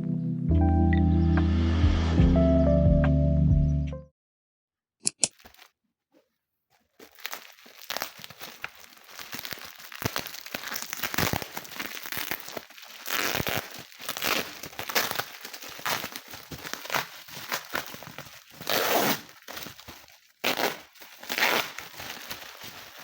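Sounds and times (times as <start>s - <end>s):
sharp clicks: 5.0s - 5.4s
crinkling and rustling: 5.2s - 23.0s.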